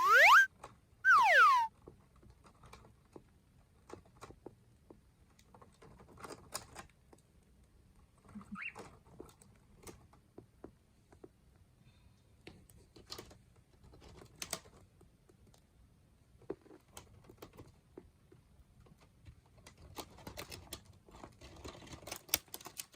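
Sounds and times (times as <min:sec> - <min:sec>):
cockatiel call sliding down: 0:00.0 - 0:00.5, 0:01.1 - 0:01.7
short bird chirp: 0:00.0 - 0:00.5, 0:01.1 - 0:01.7.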